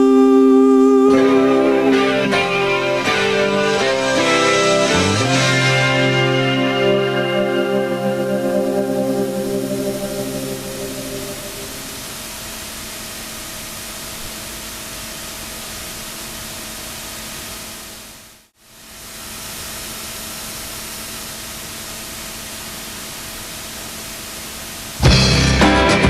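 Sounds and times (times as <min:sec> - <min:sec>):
music with guitar and drums: 0:00.0 - 0:12.2, 0:25.0 - 0:26.0
steady hiss: 0:00.0 - 0:26.0.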